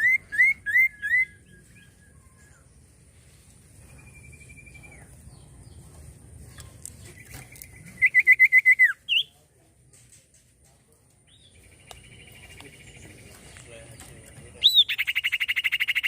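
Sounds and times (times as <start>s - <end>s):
bird whistling and trilling: 0.0s - 2.6s, 7.2s - 9.4s, 14.6s - 16.0s.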